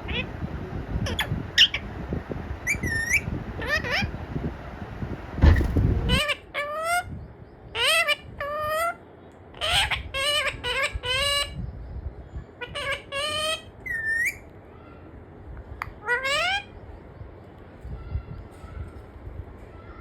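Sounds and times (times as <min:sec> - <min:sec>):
parrot squeaky speech-like calls: 0:00.1 - 0:00.3, 0:01.0 - 0:01.9, 0:02.6 - 0:04.1, 0:06.1 - 0:07.1, 0:07.8 - 0:09.0, 0:09.6 - 0:11.6, 0:12.6 - 0:15.1, 0:15.8 - 0:16.8
parrot whistle: 0:02.7 - 0:04.1, 0:12.7 - 0:14.4.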